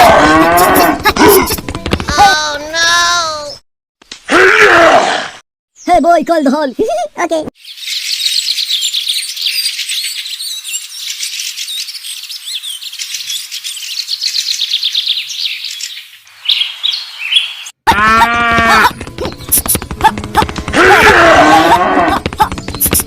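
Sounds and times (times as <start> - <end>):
pitched voice-like sound: 0.0 - 3.6
birds chirping and twittering: 7.6 - 17.8, 18.9 - 20.6, 22.3 - 23.0.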